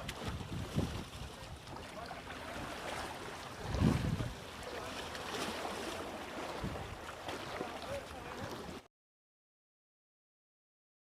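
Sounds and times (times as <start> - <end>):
wind buffeting microphone: 0.0 - 1.8, 3.5 - 4.6, 6.4 - 7.1.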